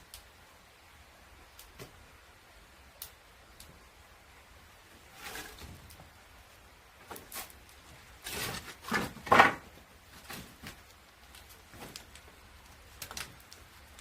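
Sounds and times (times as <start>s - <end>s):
firewood scraping and knocking: 4.9s - 6.2s, 7.0s - 14.0s.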